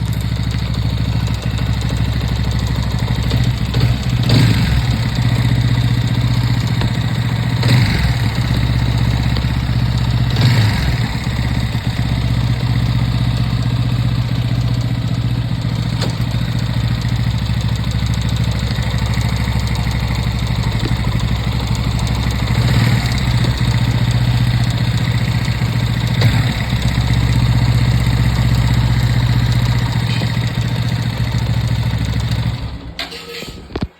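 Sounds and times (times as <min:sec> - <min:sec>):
engine throttle blips: 0:00.0 - 0:33.9
motorcycle engine idling: 0:00.0 - 0:33.9.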